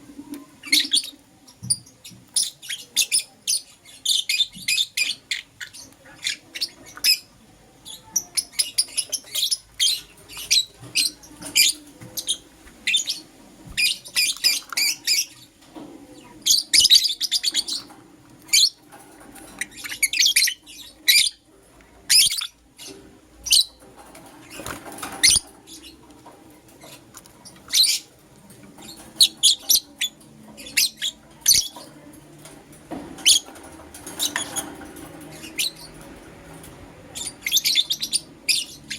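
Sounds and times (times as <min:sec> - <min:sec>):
lovebirds chirping: 0:00.0 - 0:38.9.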